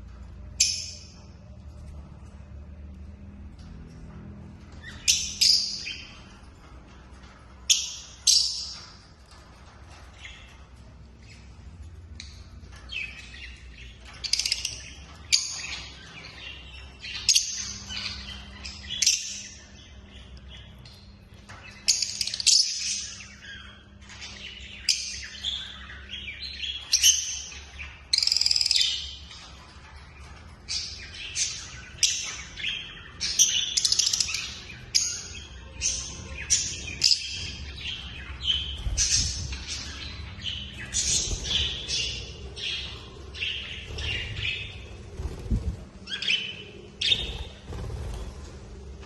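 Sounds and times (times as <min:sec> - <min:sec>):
lovebirds chirping: 0:09.9 - 0:49.0.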